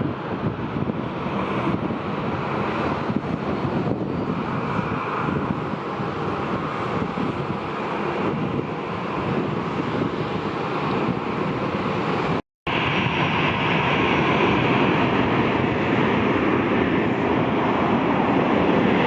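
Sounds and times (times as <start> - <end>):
jet engines rumbling: 0.0 - 19.0
wind buffeting microphone: 0.0 - 19.0.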